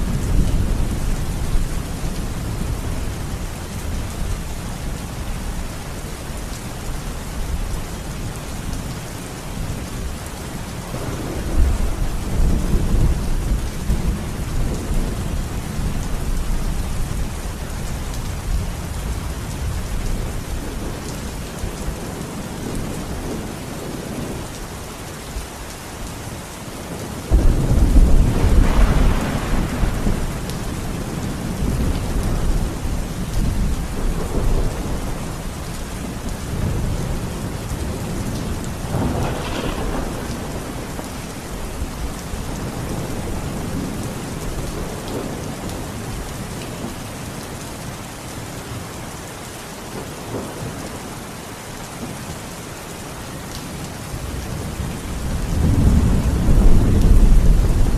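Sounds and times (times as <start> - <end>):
steady rain: 0.0 - 57.9
rolling thunder: 10.9 - 17.1, 27.3 - 35.5, 36.5 - 45.9, 54.3 - 57.9.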